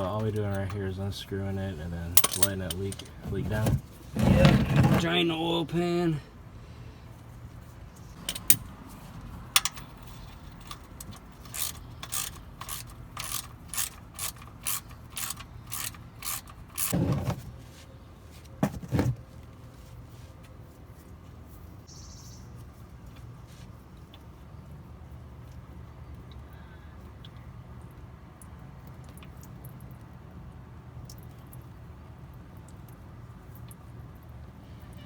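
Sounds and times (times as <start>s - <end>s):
socket ratchet clicking: 9.5s - 17.0s.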